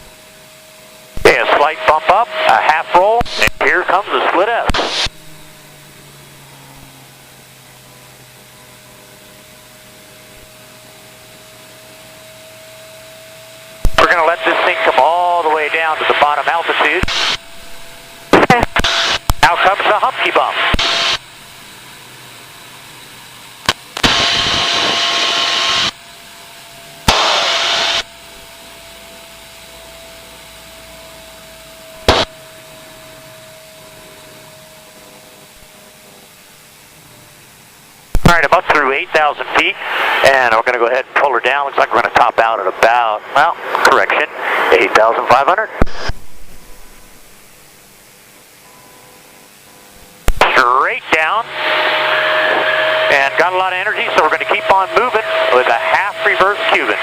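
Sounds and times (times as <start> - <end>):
jet engine hum with whine: 0.0 - 57.0
radio hiss bursts: 1.2 - 5.6, 13.8 - 21.4, 23.6 - 26.0, 27.1 - 28.1, 32.0 - 32.4, 38.1 - 47.9, 50.2 - 57.0.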